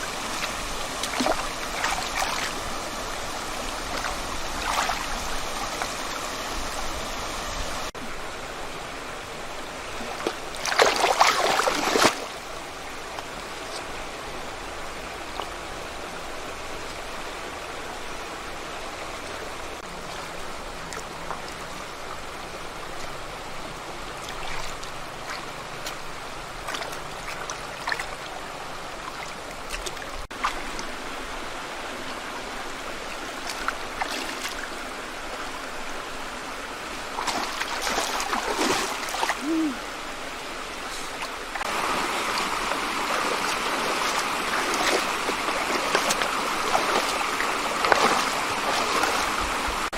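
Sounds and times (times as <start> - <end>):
small splashes and knocks: 0.0 - 6.0, 10.0 - 12.3, 24.2 - 28.4, 29.0 - 31.0, 33.4 - 34.7, 37.1 - 39.6, 40.9 - 49.9
stream water running: 0.0 - 49.9.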